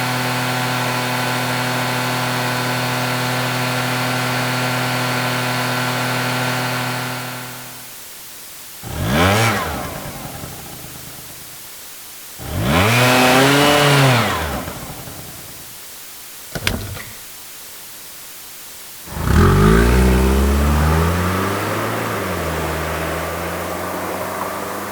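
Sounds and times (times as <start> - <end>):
car engine starting: 16.6 - 17.2
motorcycle engine revving: 19.1 - 22.4.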